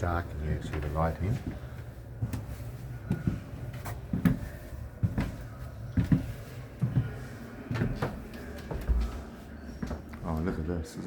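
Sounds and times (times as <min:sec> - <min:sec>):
footsteps: 0:00.0 - 0:10.7.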